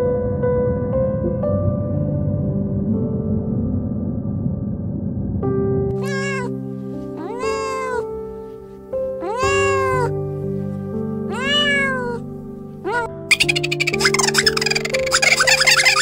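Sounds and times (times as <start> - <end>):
soft background music: 0.0 - 16.0
cat meowing: 6.0 - 8.2, 9.2 - 10.2, 11.3 - 12.2, 12.9 - 16.0.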